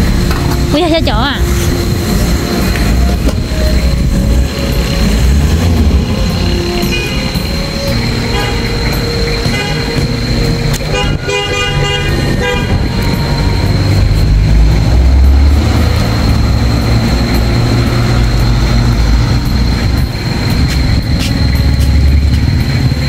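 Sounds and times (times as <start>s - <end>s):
motorcycle engine rumbling: 0.0s - 23.0s
horn-like tone: 3.4s - 15.0s.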